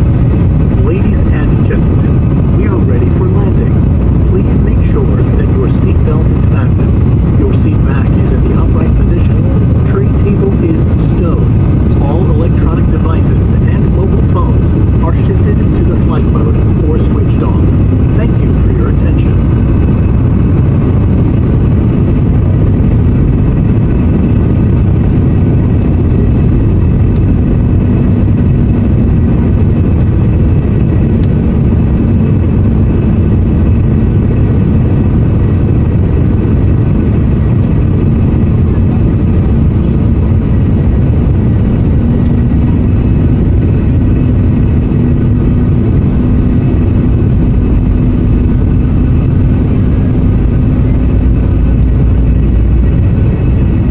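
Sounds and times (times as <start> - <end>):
airliner engines deep rumble: 0.0 - 53.9
steady low hum: 0.0 - 53.9.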